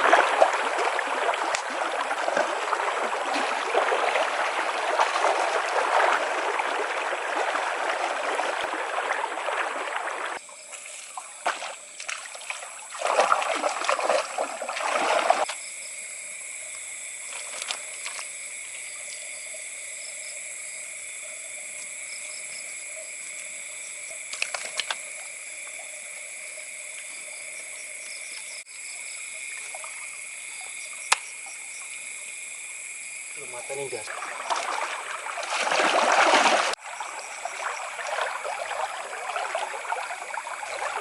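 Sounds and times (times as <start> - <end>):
rush of water-like noise: 0.0 - 15.5, 33.4 - 41.0
night insects droning: 0.0 - 41.0.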